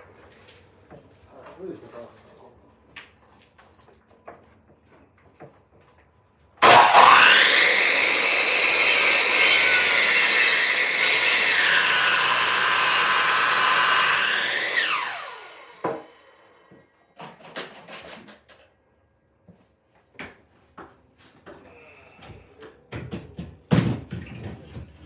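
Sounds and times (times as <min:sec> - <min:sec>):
saw blade cutting wood: 0:06.6 - 0:16.7
electric chop saw whining: 0:06.6 - 0:16.8.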